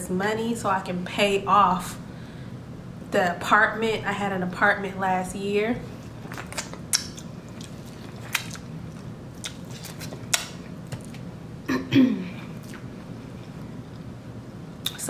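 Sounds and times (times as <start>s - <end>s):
chewing seafood: 5.9s - 11.3s.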